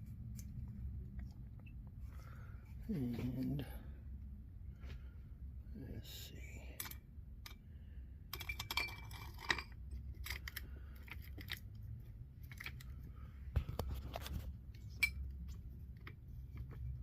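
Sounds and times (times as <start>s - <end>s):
metal parts clinking: 8.3s - 11.7s.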